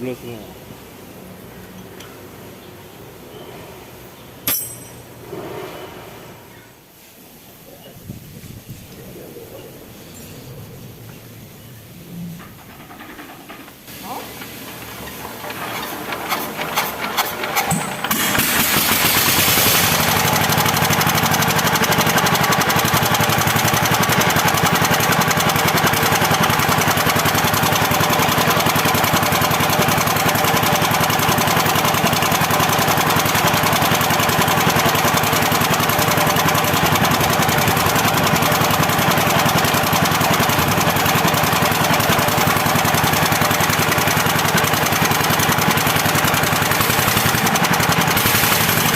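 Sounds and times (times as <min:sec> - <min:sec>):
diesel engine cranking and running: 0:11.0 - 0:48.9.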